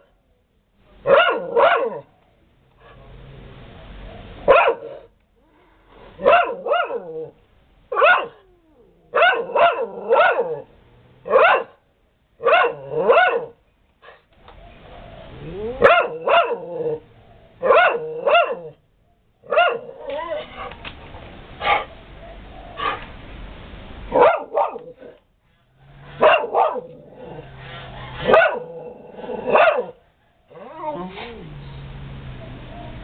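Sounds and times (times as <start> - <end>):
dog barking: 1.0 - 2.2, 4.2 - 5.1, 6.1 - 7.3, 7.9 - 8.5, 9.1 - 11.8, 12.4 - 14.2, 15.8 - 18.8, 19.4 - 20.7, 21.6 - 23.0, 24.1 - 25.2, 26.1 - 30.6.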